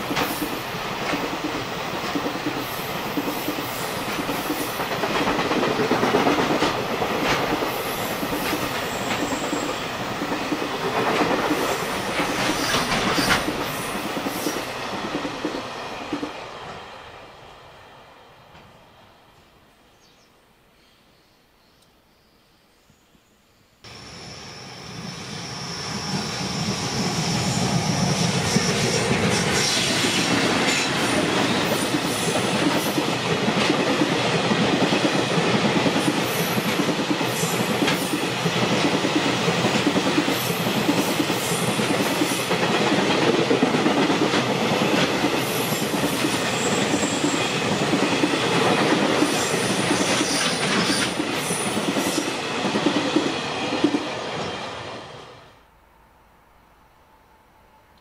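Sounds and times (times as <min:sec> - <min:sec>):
train wheels clickety-clack: 0:00.0 - 0:16.8, 0:26.0 - 0:54.7.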